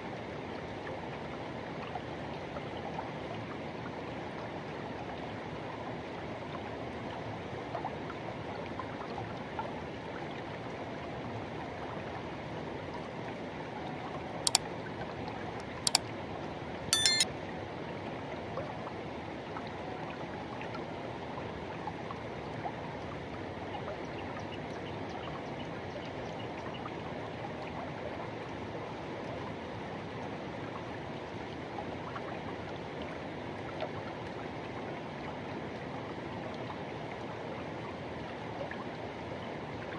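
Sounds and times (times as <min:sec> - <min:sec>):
sharp clicks: 0:17.0 - 0:17.2
short high squeak: 0:17.0 - 0:17.2.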